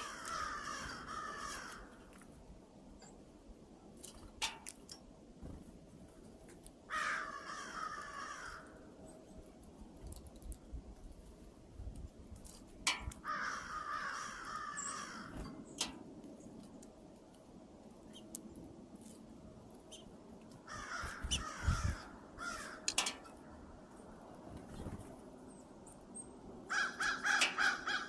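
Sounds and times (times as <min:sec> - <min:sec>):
bird giving harsh raspy calls: 0:00.0 - 0:01.9, 0:20.7 - 0:23.0, 0:26.7 - 0:28.0.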